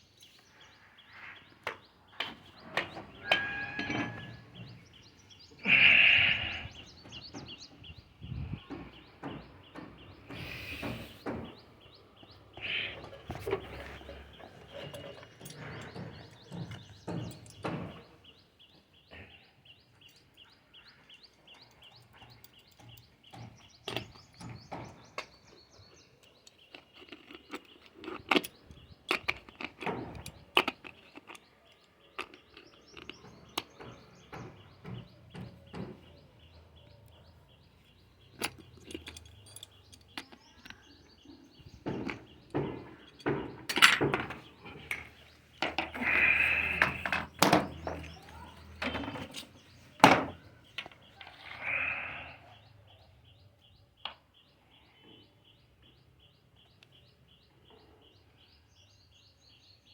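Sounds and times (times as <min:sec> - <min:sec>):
small birds chirping: 0:00.0 - 0:59.9
sharp knocks and clinks: 0:01.6 - 0:05.1, 0:13.1 - 0:18.4, 0:26.2 - 0:51.0.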